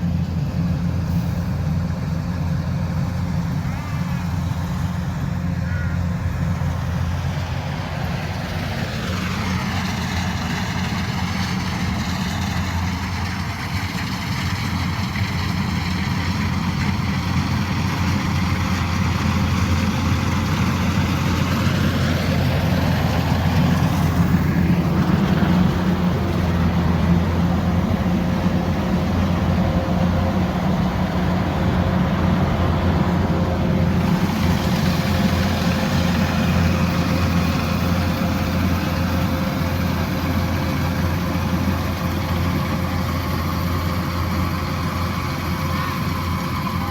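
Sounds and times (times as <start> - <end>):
combine harvester engine running: 0.0 - 46.9.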